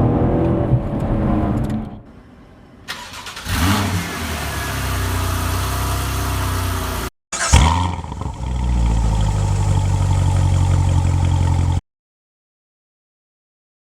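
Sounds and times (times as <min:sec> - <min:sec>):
car engine running: 0:04.3 - 0:11.8.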